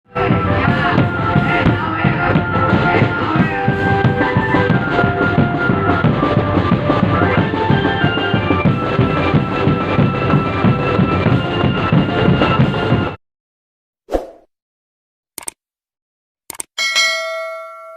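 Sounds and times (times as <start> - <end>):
held melody line: 0.1 - 13.1
fast drumming: 0.1 - 13.2.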